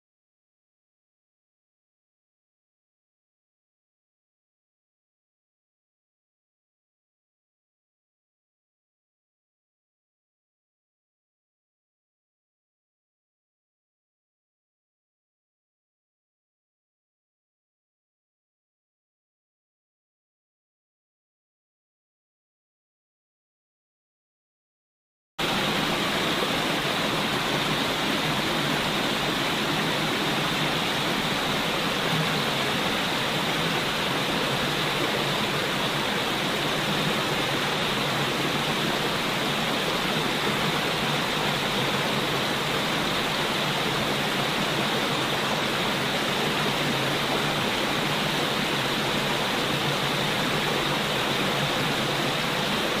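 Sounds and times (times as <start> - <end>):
rushing flowing water: 25.4 - 53.0.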